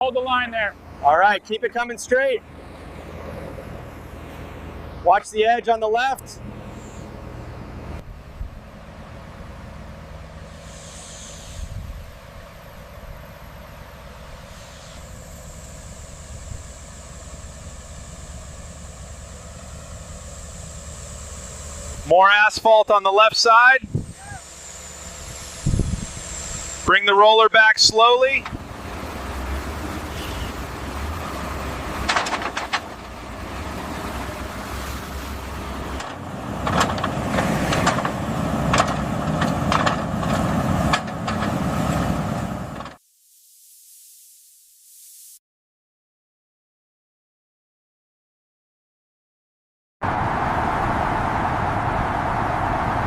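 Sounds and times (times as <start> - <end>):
heavy machinery engine drone: 0.0 - 43.0, 50.0 - 53.0
machinery hiss: 10.4 - 12.1, 14.4 - 22.1, 23.9 - 26.9, 43.2 - 45.4
metal clanks and knocks: 32.0 - 33.2, 35.9 - 41.7.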